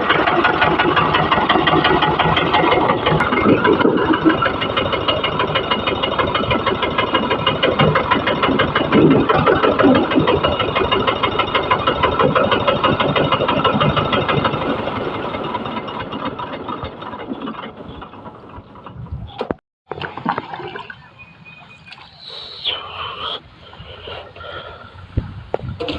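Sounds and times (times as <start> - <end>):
old tractor engine knocking: 0.0 - 19.6.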